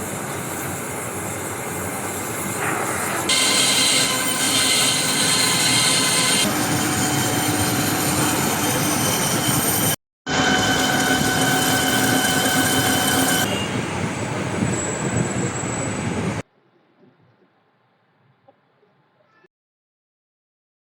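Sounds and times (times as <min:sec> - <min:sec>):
gear reducer mechanical whine: 0:10.3 - 0:16.4.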